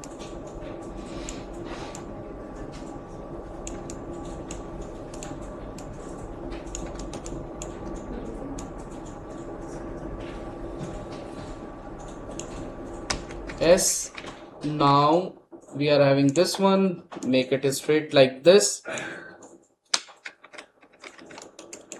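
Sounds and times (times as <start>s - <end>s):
steady low hum: 0.0s - 19.6s
keyboard and mouse clicking: 3.6s - 5.9s, 6.6s - 9.5s, 12.0s - 14.4s, 19.0s - 21.9s.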